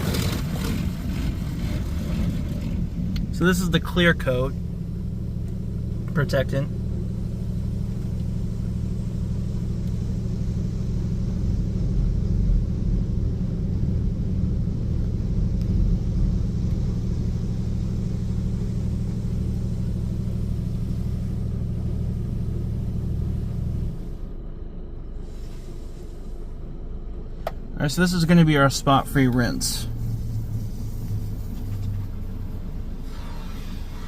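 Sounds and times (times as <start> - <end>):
car wash machinery rumbling: 0.0 - 34.0.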